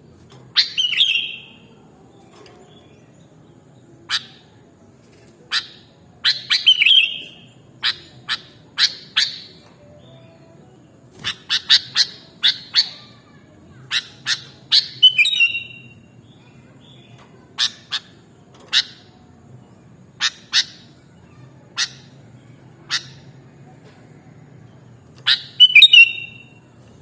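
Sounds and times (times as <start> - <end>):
bird chip calls: 0.5 - 1.8, 5.5 - 9.6, 11.2 - 16.5, 17.4 - 19.2, 20.2 - 23.4, 25.2 - 26.6.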